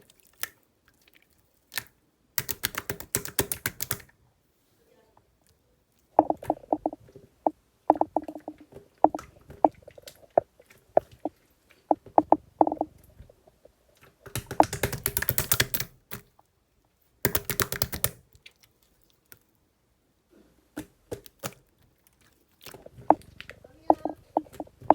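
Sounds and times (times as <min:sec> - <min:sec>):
mouth clicks: 0:06.2 - 0:13.6, 0:14.4 - 0:15.0, 0:22.7 - 0:24.9.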